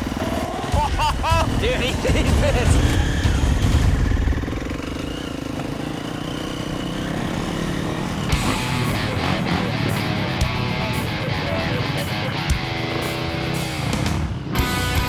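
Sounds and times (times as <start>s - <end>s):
dirt bike engines buzzing: 0.0s - 15.0s
guitar music: 8.3s - 15.0s.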